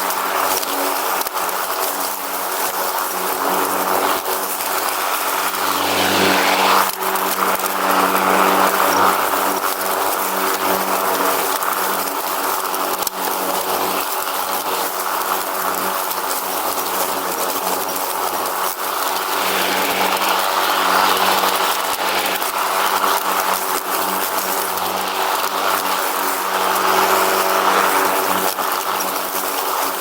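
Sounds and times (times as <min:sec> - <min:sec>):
lawn mower engine running: 0:00.0 - 0:30.0.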